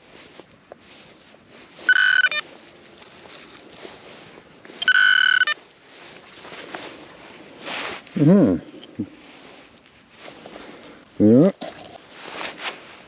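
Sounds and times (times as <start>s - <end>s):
metal detector beep: 1.8s - 2.5s, 4.8s - 5.6s.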